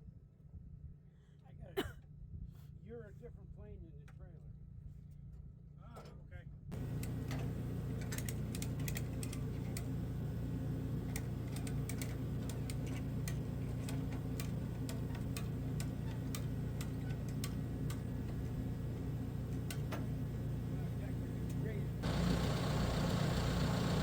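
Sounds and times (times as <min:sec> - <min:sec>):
farm machine engine running: 0:06.7 - 0:24.0.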